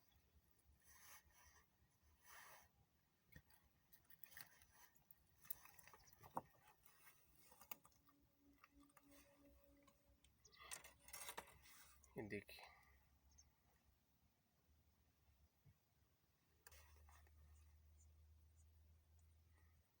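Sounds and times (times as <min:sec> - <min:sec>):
faint clicks and rustles: 0:00.0 - 0:12.2, 0:16.5 - 0:19.7.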